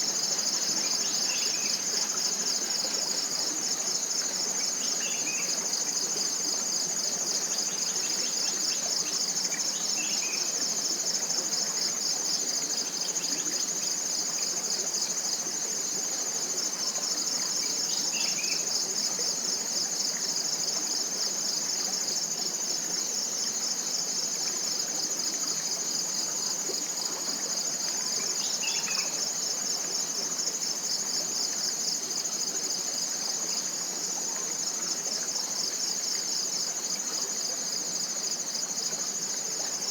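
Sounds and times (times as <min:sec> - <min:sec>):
insects trilling: 0:24.2 - 0:39.9.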